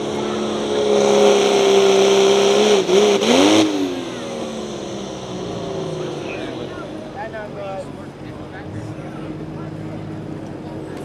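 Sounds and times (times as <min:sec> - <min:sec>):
engine revving under load: 0:00.0 - 0:07.4.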